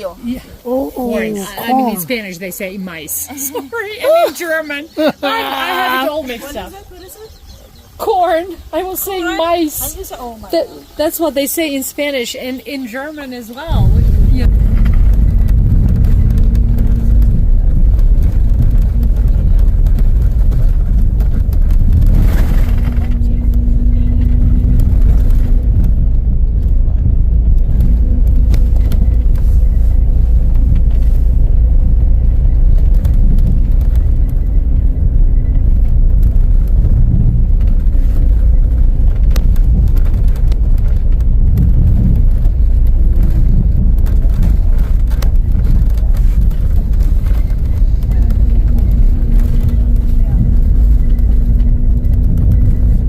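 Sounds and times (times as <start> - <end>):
road vehicle rumbling from inside: 0.0 - 53.0.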